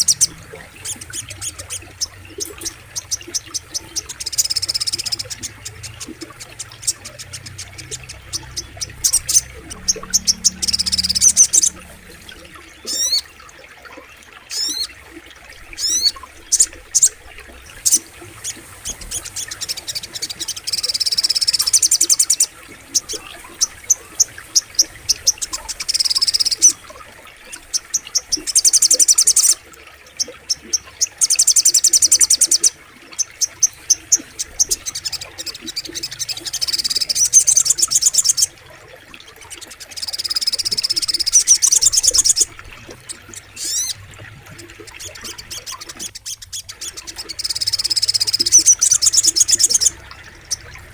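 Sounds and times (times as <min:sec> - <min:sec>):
bird song with chips and trills: 0:00.0 - 0:15.0, 0:15.6 - 0:38.6, 0:39.4 - 0:50.9
low hum: 0:05.1 - 0:13.5.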